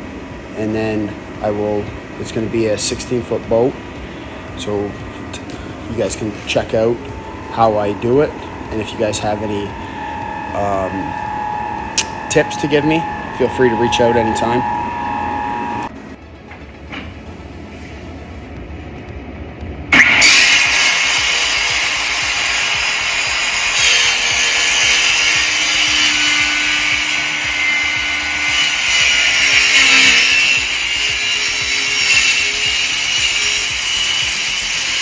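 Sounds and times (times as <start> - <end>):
power tool cutting aluminum sheet: 4.6 - 15.9, 20.0 - 35.0.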